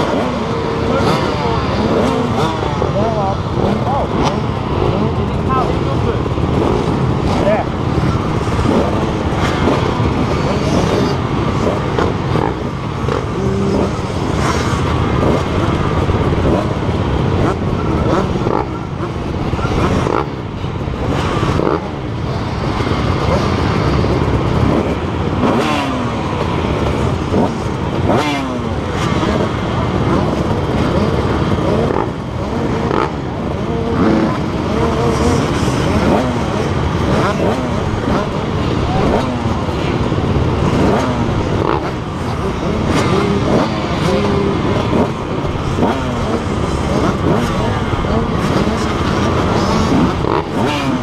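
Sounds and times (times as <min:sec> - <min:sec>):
heavy low rumble: 0:00.0 - 0:51.0
motocross bike engines revving: 0:00.0 - 0:51.0.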